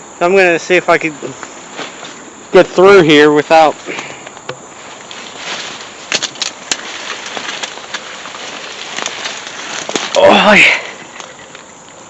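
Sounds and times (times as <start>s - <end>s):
leaves and brush rustling: 0.0s - 12.0s
twigs snapping: 3.8s - 12.0s.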